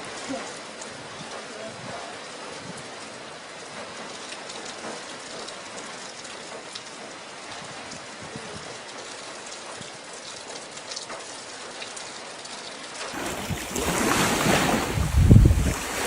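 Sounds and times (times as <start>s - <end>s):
rain pattering: 0.0s - 16.0s
water surging: 0.0s - 16.0s
wind buffeting microphone: 13.2s - 16.0s.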